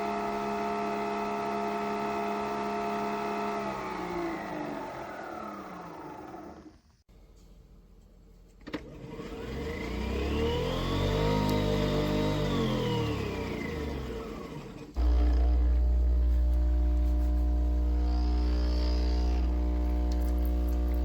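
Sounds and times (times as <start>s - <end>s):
motor whining: 9.1s - 21.0s
pump humming: 9.2s - 21.0s.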